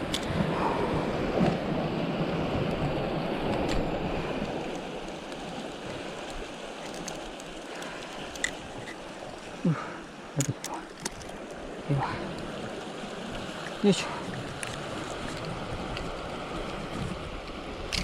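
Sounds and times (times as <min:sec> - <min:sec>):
sea water surging against rocks: 0:00.0 - 0:18.0
small clicks: 0:04.4 - 0:09.2.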